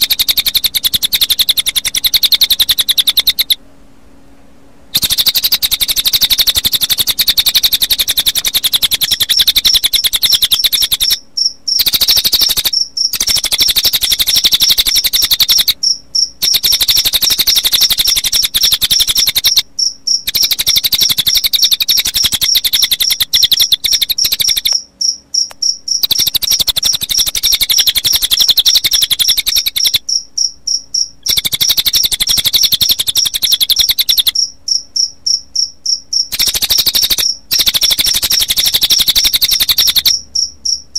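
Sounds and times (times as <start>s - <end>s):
bird trilling: 0.0s - 3.6s, 4.9s - 30.2s, 31.2s - 34.5s, 36.3s - 40.5s
crickets chirping: 0.0s - 3.6s, 4.9s - 40.9s.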